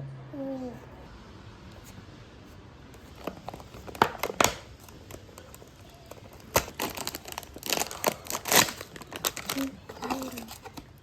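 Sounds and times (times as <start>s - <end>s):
wrapper crinkling: 3.0s - 11.0s.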